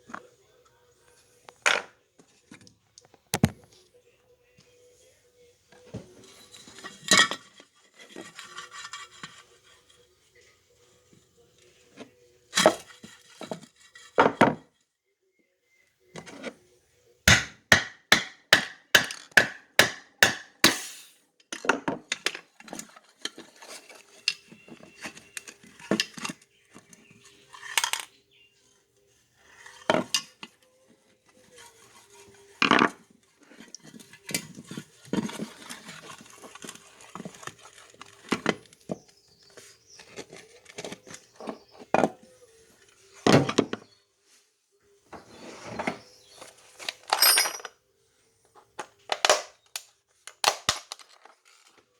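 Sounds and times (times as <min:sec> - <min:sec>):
metallic knocks and clinks: 0:47.1 - 0:47.7.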